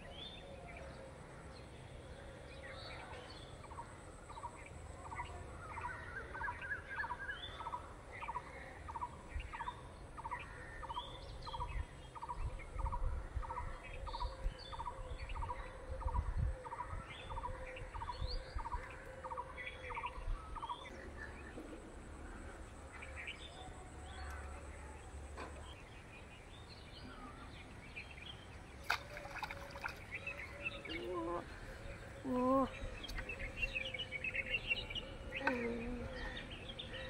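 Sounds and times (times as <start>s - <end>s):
small birds chirping: 17.3s - 37.0s.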